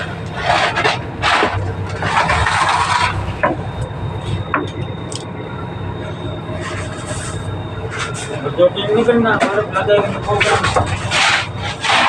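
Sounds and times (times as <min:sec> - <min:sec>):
rushing scraping noises: 0:00.0 - 0:03.4, 0:09.4 - 0:12.0
boat engine droning: 0:00.0 - 0:12.0.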